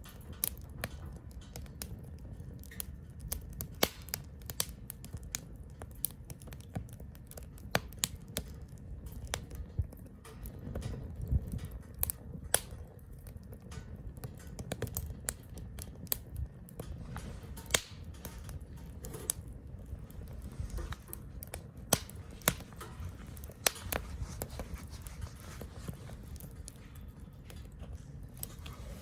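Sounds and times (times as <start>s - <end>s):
wood fire crackling and popping: 0.0s - 29.0s
low steady rumble: 8.9s - 29.0s.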